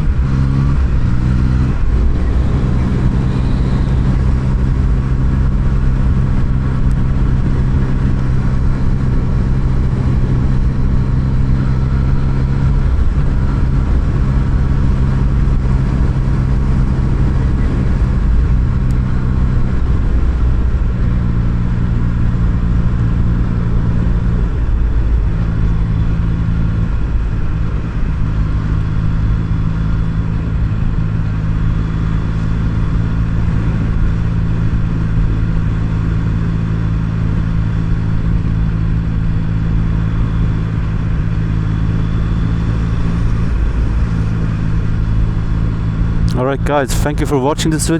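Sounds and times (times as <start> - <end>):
low wind rumble: 0.0 - 47.9
motorcycle engine running: 0.0 - 47.9.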